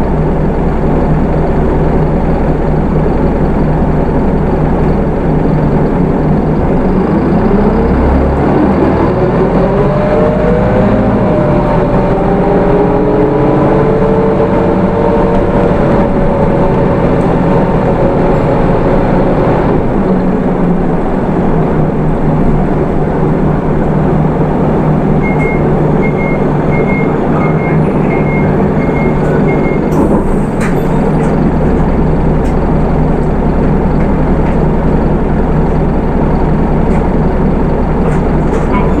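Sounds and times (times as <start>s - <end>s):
bus diesel engine pulling away: 0.0s - 39.0s
short high beeps: 25.2s - 29.9s.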